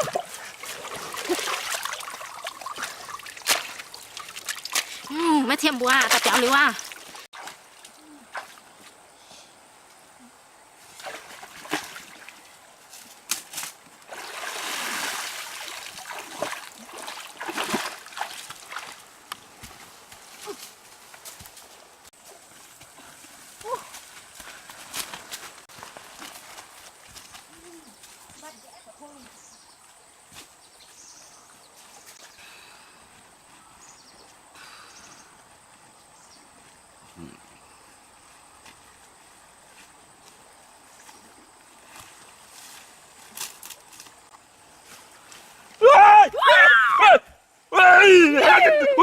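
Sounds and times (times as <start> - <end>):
water splashing and trickling: 0.0 - 8.9, 10.8 - 20.6.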